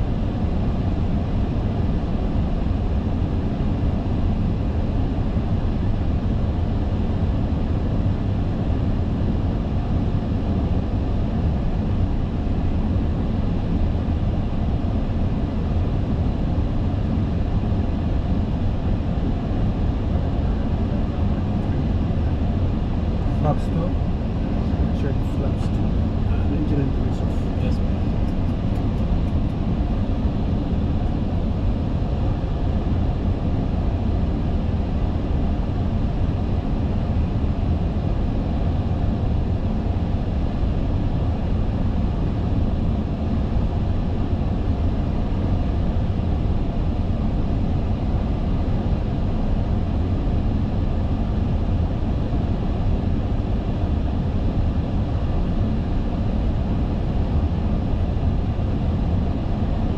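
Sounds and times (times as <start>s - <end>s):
airflow rushing over cockpit: 19.2s - 32.7s.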